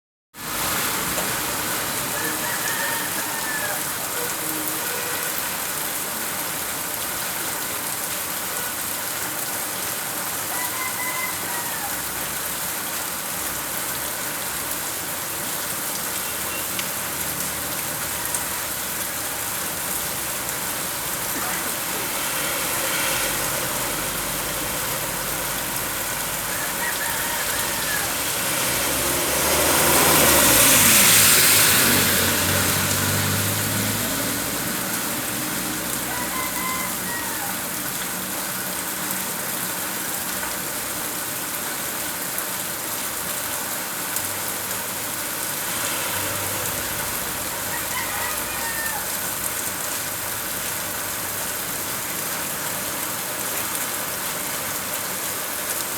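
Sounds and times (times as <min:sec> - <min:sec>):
steady rain falling: 0:00.4 - 0:55.9
vehicle passing: 0:16.8 - 0:38.5, 0:44.7 - 0:51.8.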